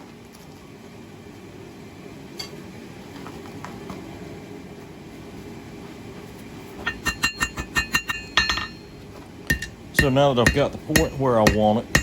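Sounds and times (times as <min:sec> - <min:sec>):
hammer ringing on anvil: 0:06.9 - 0:12.0.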